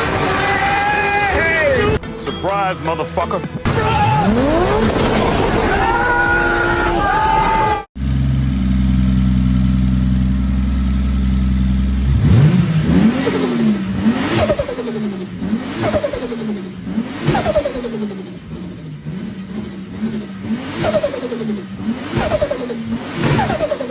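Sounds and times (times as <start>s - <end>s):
car engine idling and revving: 3.6s - 5.5s, 8.0s - 23.9s.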